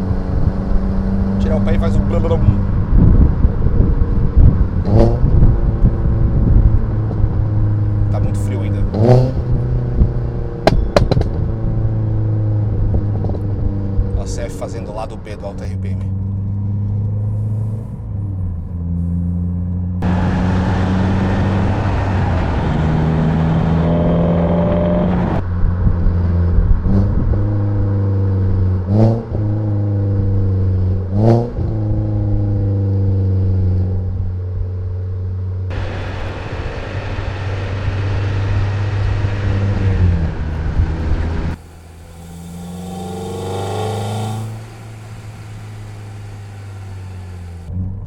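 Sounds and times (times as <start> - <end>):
car engine shifting gears: 0.0 - 14.4, 16.0 - 25.4, 35.7 - 48.0
rushing noise: 41.5 - 47.7.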